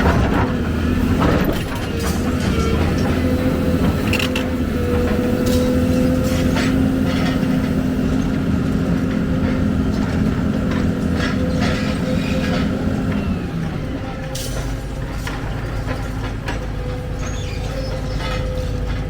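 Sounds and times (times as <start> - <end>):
excavator diesel engine running: 0.0 - 19.0
metallic clanks and knocks: 14.3 - 19.0.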